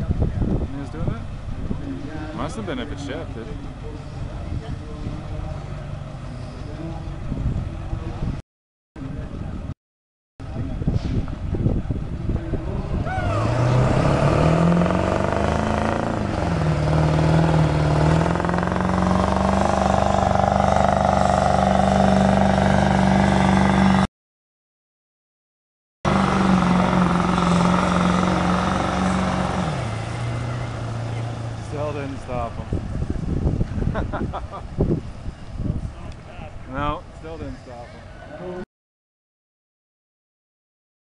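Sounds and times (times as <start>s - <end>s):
diesel pickup engine revving: 12.2s - 24.1s, 26.1s - 34.1s.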